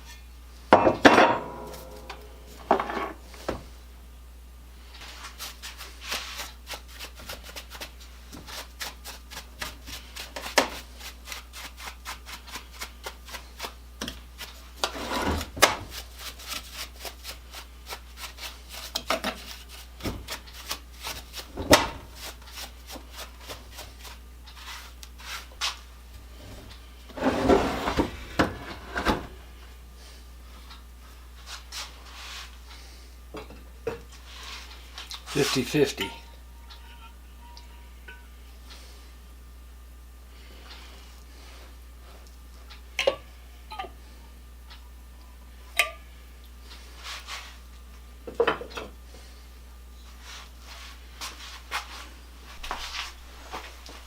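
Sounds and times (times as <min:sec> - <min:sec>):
rapid scraping strokes: 0:05.0 - 0:13.8.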